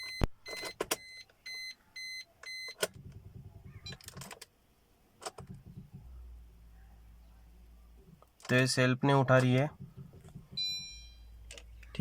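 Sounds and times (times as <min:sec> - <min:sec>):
dashboard warning chime beeping: 0:00.0 - 0:02.8, 0:10.5 - 0:11.5.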